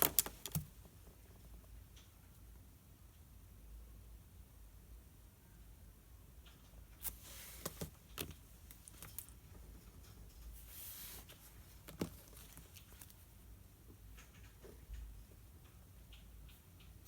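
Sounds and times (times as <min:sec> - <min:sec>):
paper rustling: 0:10.6 - 0:13.3.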